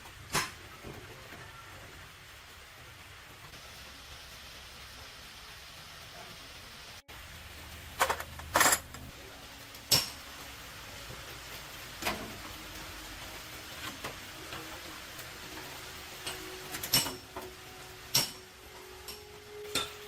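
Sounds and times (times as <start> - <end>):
metal tools clanking: 8.0 - 9.1.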